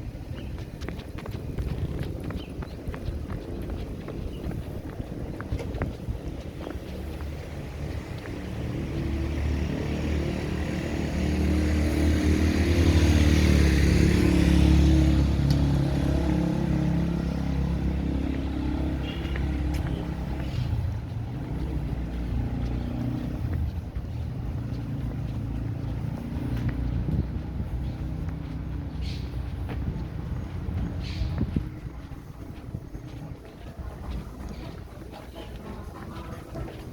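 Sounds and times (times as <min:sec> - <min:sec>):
vehicle engine running: 0:00.0 - 0:36.9.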